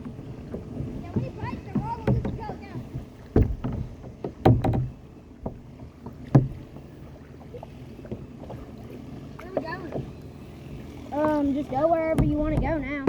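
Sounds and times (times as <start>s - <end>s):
knocks and bumps on kayak: 0.0s - 6.9s, 11.1s - 13.0s
low rumble of water: 0.0s - 13.0s
wind: 0.0s - 13.0s.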